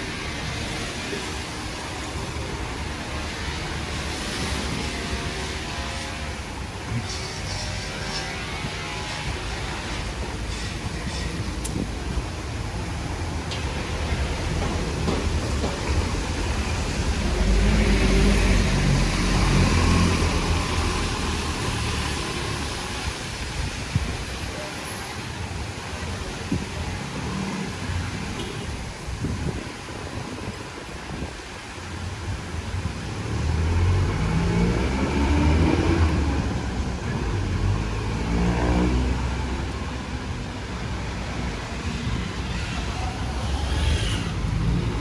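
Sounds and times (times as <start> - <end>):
rain hissing: 0.0 - 45.0
vehicles passing: 0.0 - 45.0
vehicle engine passing: 33.3 - 39.8.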